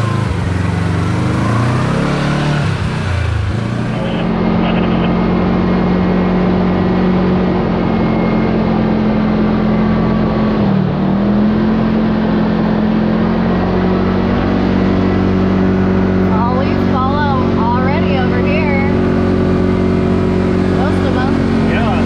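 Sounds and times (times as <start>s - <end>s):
tyre and road noise: 0.0s - 22.0s
utility vehicle engine running: 0.0s - 22.0s.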